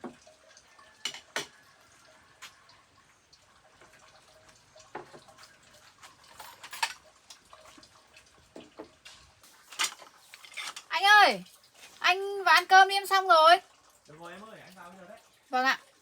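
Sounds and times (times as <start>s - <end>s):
water dripping and splashing: 0.0s - 16.0s.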